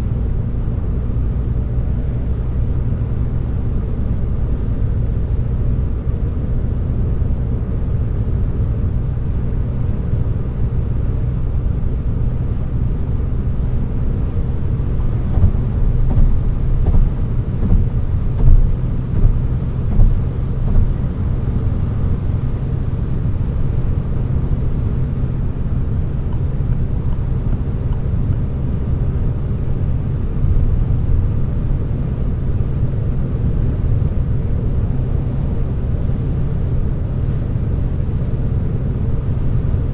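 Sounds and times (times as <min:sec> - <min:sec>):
car engine and tyres rumbling: 0:00.0 - 0:39.9
car bumps: 0:15.1 - 0:21.1.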